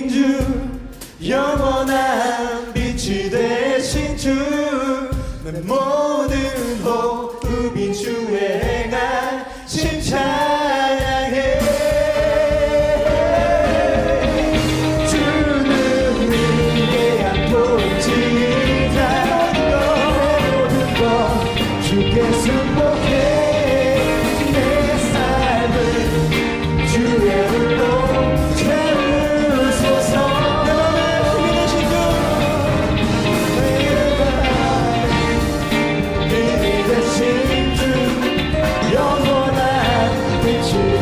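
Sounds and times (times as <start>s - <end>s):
people singing: 0.0s - 41.0s
rock band playing: 11.0s - 41.0s.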